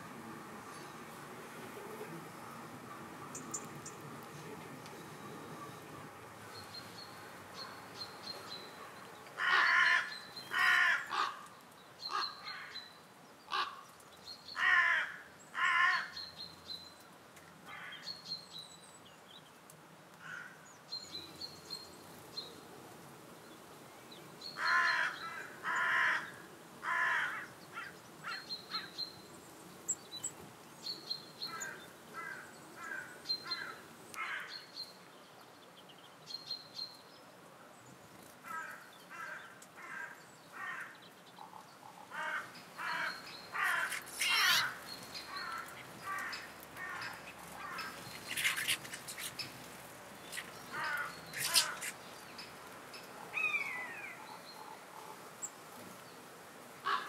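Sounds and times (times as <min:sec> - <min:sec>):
small birds high thin calls: 0:06.6 - 0:16.9, 0:24.4 - 0:35.0, 0:38.5 - 0:55.6
large bird cawing: 0:09.4 - 0:11.4, 0:13.5 - 0:13.8, 0:14.6 - 0:16.2, 0:24.6 - 0:28.9, 0:31.5 - 0:34.7, 0:42.1 - 0:49.4, 0:50.3 - 0:52.0.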